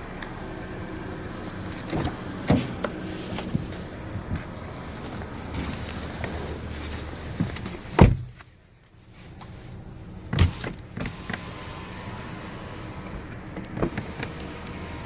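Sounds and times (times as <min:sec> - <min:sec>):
heavy thumps on car body: 0:07.4 - 0:08.4.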